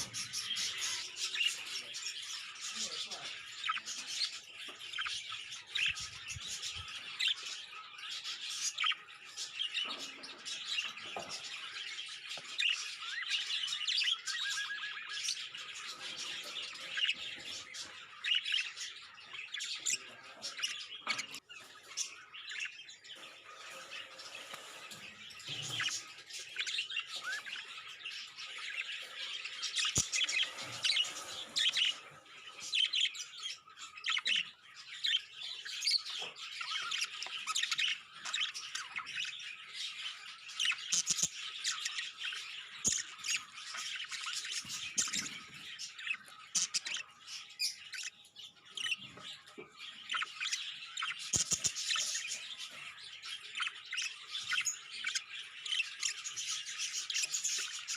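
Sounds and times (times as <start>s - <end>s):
budgerigars chirping: 0.0s - 57.9s.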